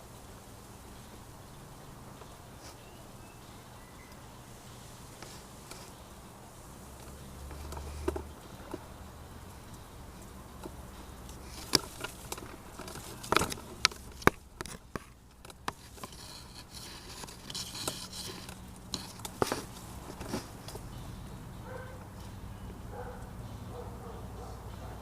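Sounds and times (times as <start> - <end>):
light rustling: 0.9 - 24.5
sharp clicks and knocks: 7.0 - 9.0, 9.7 - 20.9.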